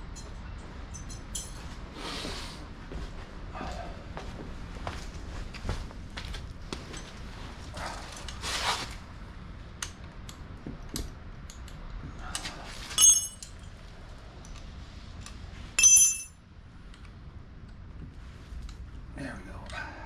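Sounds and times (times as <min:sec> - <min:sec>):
ringing metal clinks: 0:00.1 - 0:01.6, 0:13.0 - 0:13.7, 0:15.8 - 0:16.4
scraping rustle: 0:07.2 - 0:09.0.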